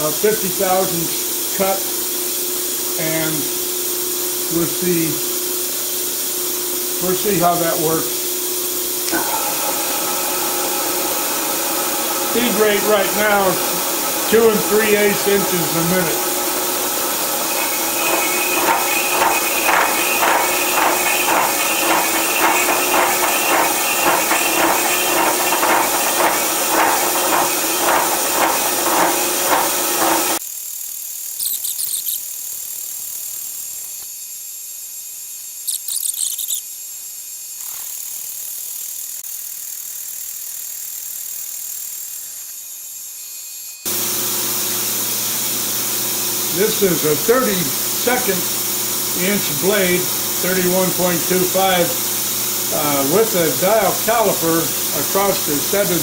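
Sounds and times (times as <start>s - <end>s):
steady hiss: 0.0s - 43.2s, 43.9s - 56.0s
saw grinding drone: 9.1s - 30.4s, 43.9s - 56.0s
short high squeaks: 31.4s - 32.2s, 35.7s - 36.6s.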